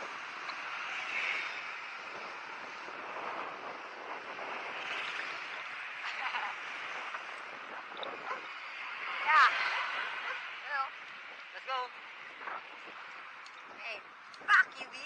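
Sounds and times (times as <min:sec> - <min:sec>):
outdoor rushing noise: 0:00.0 - 0:15.0.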